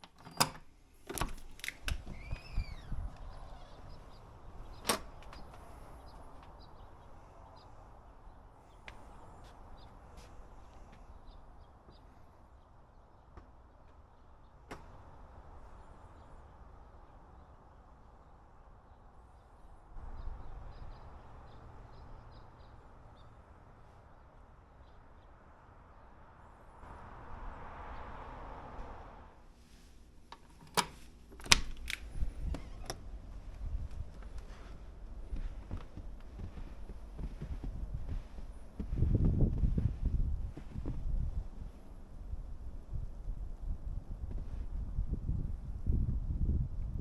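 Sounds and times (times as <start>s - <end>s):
small birds chirping: 1.0s - 26.9s
wind buffeting microphone: 1.1s - 14.2s, 31.4s - 47.0s
low steady rumble: 14.8s - 47.0s
rushing swell: 26.7s - 29.4s.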